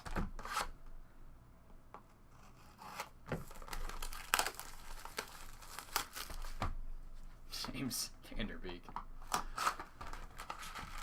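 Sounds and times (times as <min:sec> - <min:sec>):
cards rustling: 0:02.9 - 0:06.7, 0:09.2 - 0:11.0
wrapper tearing and crinkling: 0:03.4 - 0:06.6, 0:09.5 - 0:11.0.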